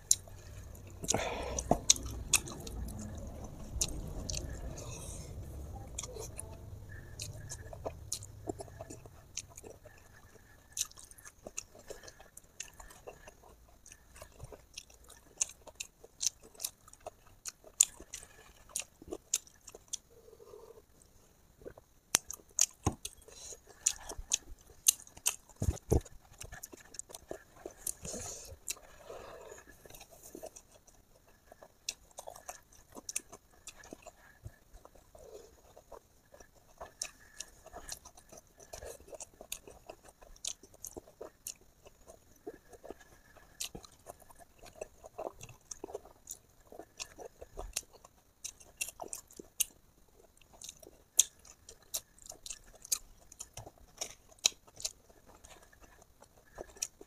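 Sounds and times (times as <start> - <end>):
person chewing and eating: 0.0 - 57.0.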